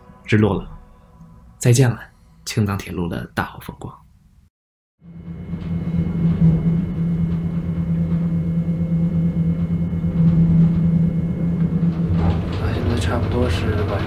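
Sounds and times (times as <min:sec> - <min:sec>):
train running with rumble: 0:05.0 - 0:14.0.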